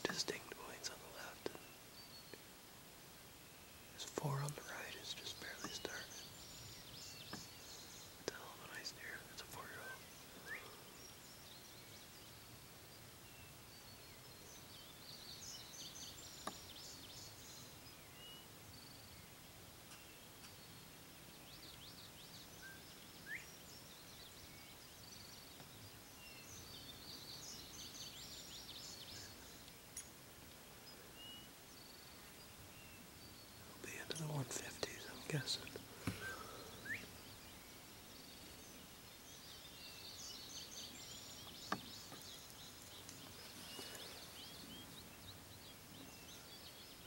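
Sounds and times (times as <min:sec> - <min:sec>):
distant songbird phrase: 0:00.0 - 0:02.5, 0:03.4 - 0:12.1, 0:30.9 - 0:47.0.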